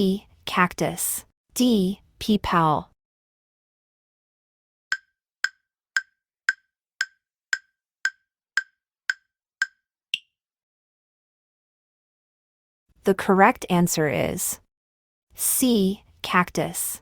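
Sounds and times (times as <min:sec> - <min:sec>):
timer ticking: 0:04.9 - 0:10.3.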